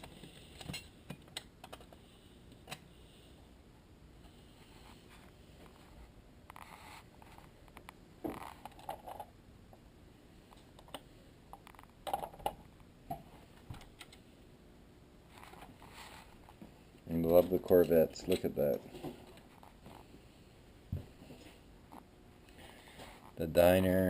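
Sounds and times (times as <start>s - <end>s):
faint clicks and knocks: 0.0s - 2.9s.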